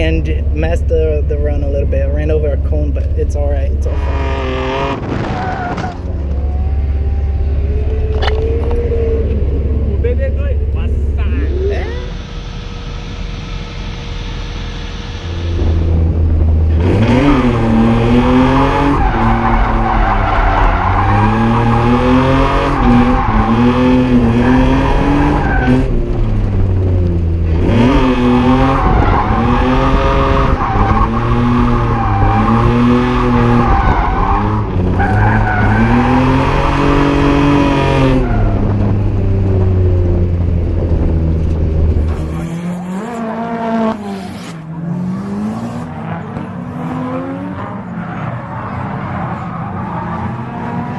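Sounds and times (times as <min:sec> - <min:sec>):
car engine revving: 0:00.0 - 0:50.9
tyres squealing and skidding: 0:03.9 - 0:09.8, 0:17.0 - 0:26.1, 0:28.2 - 0:38.9, 0:42.0 - 0:50.9.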